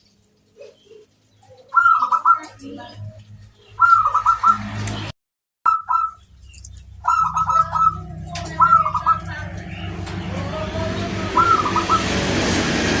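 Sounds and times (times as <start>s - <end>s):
small birds chirping: 0.0s - 5.1s, 5.7s - 12.2s
dove cooing: 0.5s - 3.2s, 6.8s - 10.1s, 11.3s - 12.4s
low steady hum: 5.7s - 13.0s.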